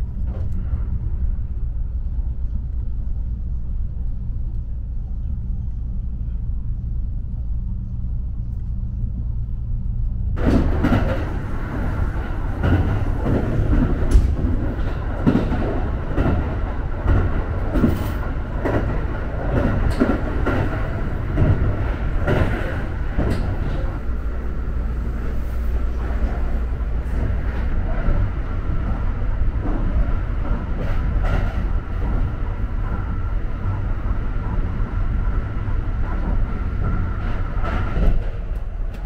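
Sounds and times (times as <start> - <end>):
train wheels rumbling on track: 0.0 - 39.0
train knocks: 10.4 - 39.0.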